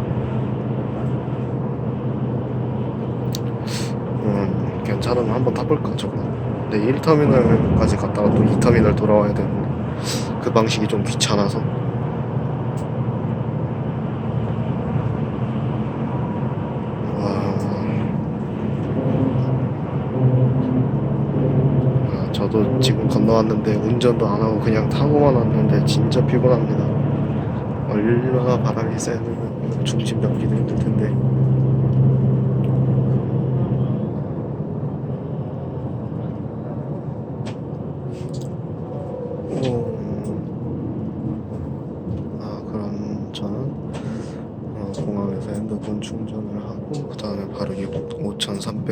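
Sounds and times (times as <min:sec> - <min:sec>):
bus engine and road noise: 0:00.0 - 0:48.9
faint voices: 0:17.0 - 0:20.9, 0:22.0 - 0:31.2, 0:38.2 - 0:40.5, 0:42.3 - 0:48.9.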